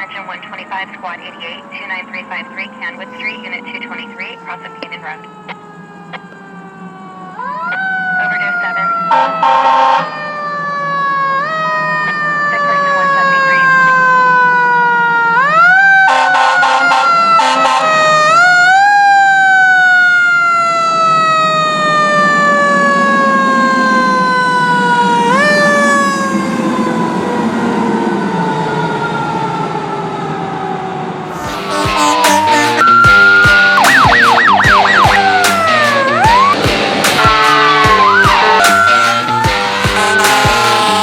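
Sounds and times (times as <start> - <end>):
fire engine siren winding: 2.4 - 41.0
pulsing air horn blasts: 7.7 - 10.2, 16.0 - 18.4, 31.3 - 41.0.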